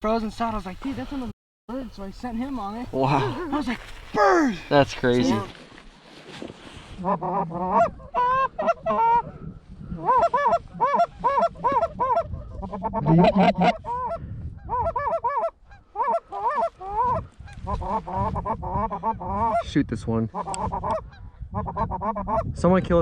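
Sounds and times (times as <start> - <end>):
geese honking and clucking: 7.0 - 19.7, 20.3 - 22.5.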